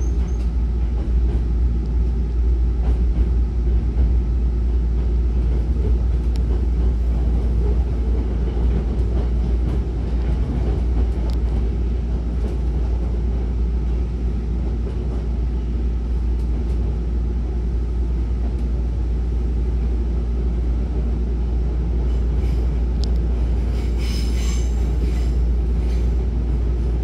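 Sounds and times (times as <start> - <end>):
train wheels rumbling on track: 0.0 - 27.0.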